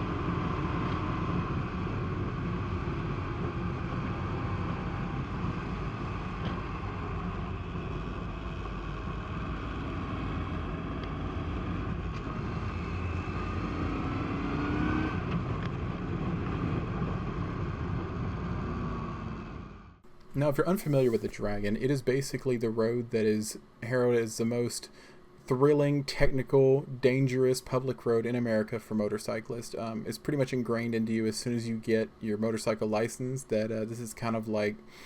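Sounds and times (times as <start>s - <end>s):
motorcycle engine running: 0.0s - 19.5s.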